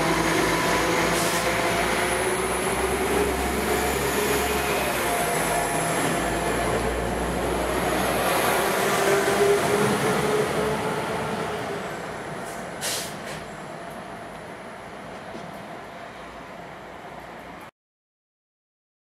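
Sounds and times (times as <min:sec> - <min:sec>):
train engine and wheels rumble: 0:00.0 - 0:17.7.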